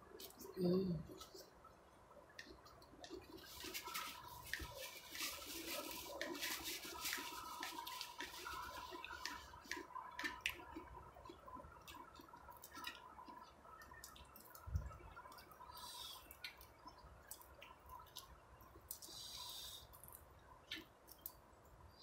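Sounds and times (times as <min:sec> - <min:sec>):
wet chewing and lip-smacking: 0:07.1 - 0:19.2.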